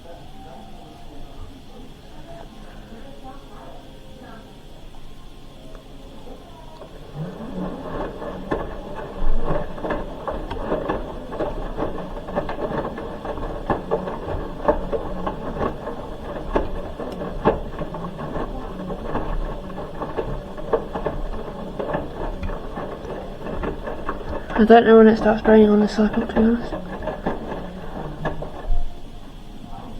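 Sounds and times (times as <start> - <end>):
motor hum: 0.0 - 29.9
washing machine drum turning: 5.9 - 29.9
knocks and clicks from drum: 6.8 - 29.3.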